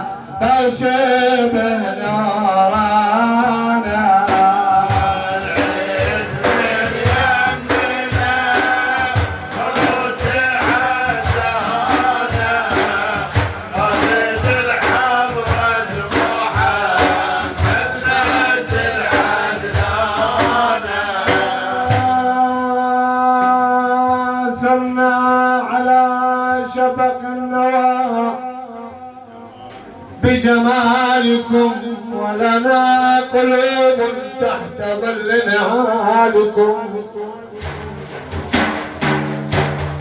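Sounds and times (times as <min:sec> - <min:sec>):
devotional singing: 0:00.0 - 0:37.9
steady drum beat: 0:00.6 - 0:22.8, 0:37.4 - 0:40.0.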